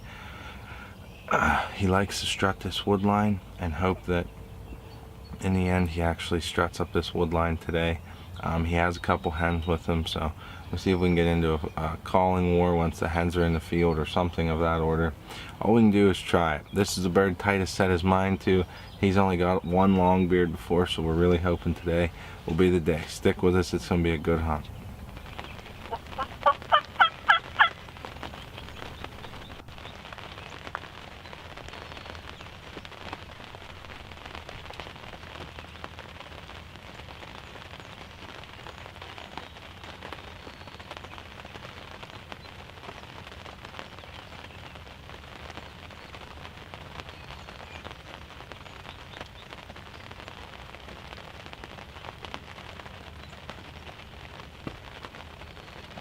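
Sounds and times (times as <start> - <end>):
faint steady hiss: 0.0 - 56.0
turkey gobbling: 25.6 - 27.8.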